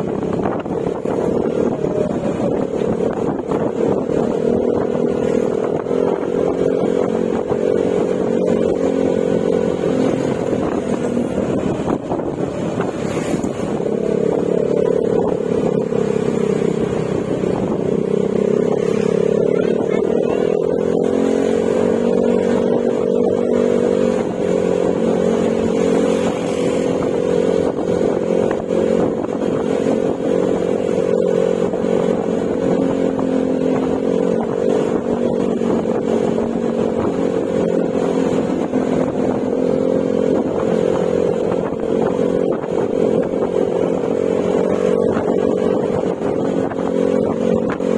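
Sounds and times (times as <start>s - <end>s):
scooter engine running: 0.0s - 47.9s.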